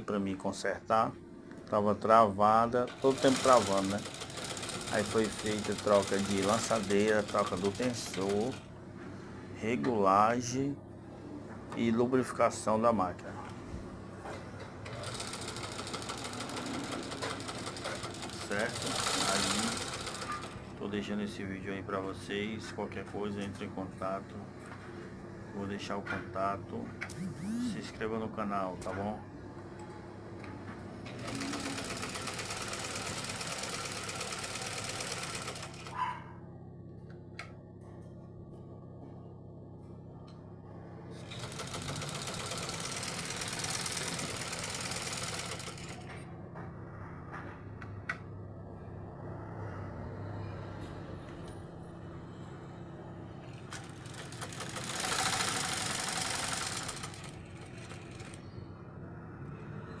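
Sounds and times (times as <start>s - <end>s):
sewing machine running: 2.4s - 8.7s, 14.8s - 20.8s, 27.1s - 27.8s, 31.0s - 36.0s, 41.1s - 46.2s, 53.5s - 58.4s
sewing machine clicks: 2.8s - 8.6s, 14.8s - 20.6s, 31.0s - 36.0s, 41.2s - 46.1s, 53.5s - 58.4s.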